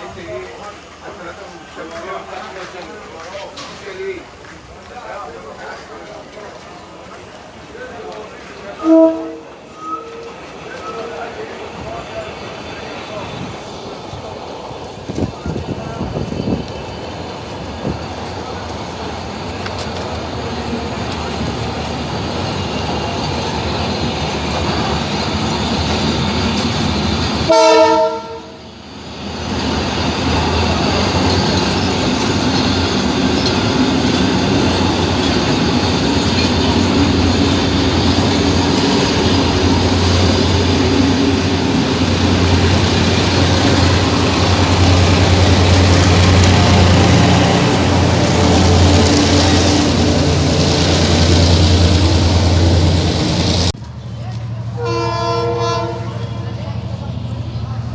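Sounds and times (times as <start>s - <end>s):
train rumbling: 0.0s - 57.9s
train horn blast: 8.8s - 10.4s, 27.4s - 28.6s, 54.7s - 56.4s.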